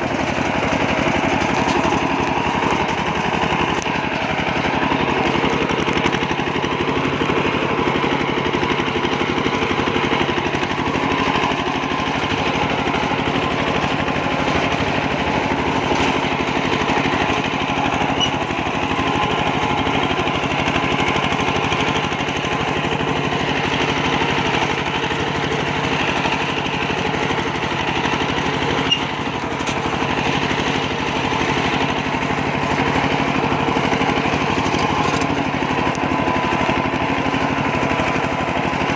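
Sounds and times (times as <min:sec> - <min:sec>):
diesel engine thudding: 0:00.0 - 0:38.9.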